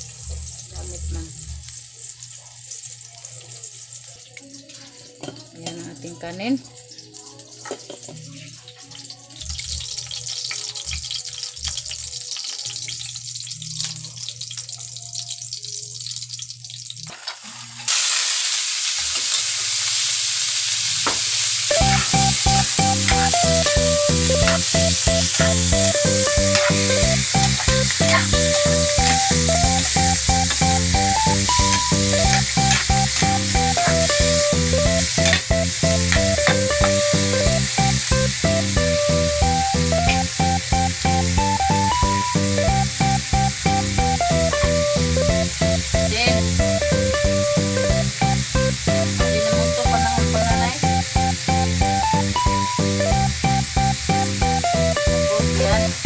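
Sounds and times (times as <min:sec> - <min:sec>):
pork sizzling in a pan: 0:00.0 - 0:56.0
background music with steady beat: 0:21.7 - 0:56.0
metal spatula stirring: 0:26.5 - 0:29.2, 0:32.4 - 0:34.1, 0:35.2 - 0:35.5.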